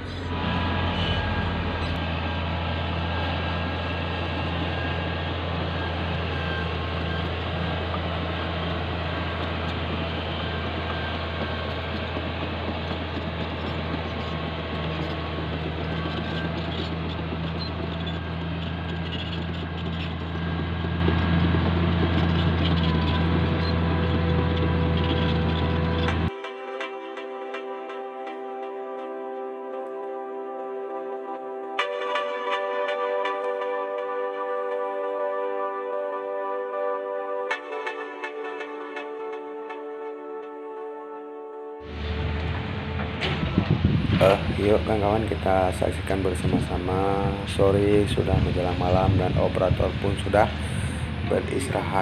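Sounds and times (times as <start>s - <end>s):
bulldozer diesel engine: 0.0s - 26.3s, 41.8s - 52.0s
bulldozer pushing soil: 0.0s - 26.3s, 41.8s - 52.0s.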